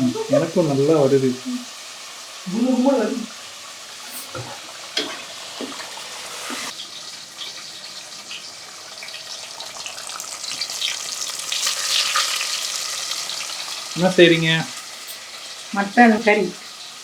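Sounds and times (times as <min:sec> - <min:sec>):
tap running into a sink: 0:04.3 - 0:06.7.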